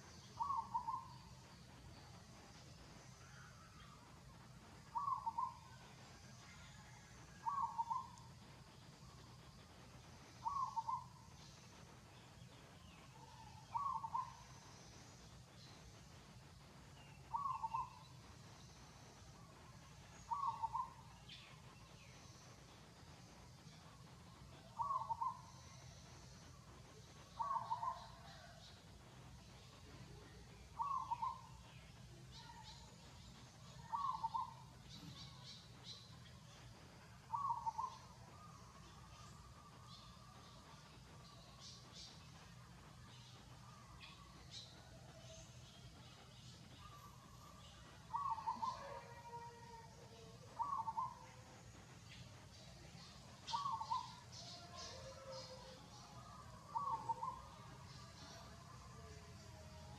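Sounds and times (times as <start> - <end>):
faint low hum: 0.0 - 59.9
bird calling: 4.9 - 5.6, 10.4 - 11.2, 13.2 - 14.4, 20.2 - 21.0, 24.8 - 25.6, 27.4 - 28.6, 30.8 - 31.5, 33.8 - 34.6, 37.3 - 39.3, 48.1 - 49.5, 50.1 - 51.4, 53.0 - 55.6, 56.6 - 58.4.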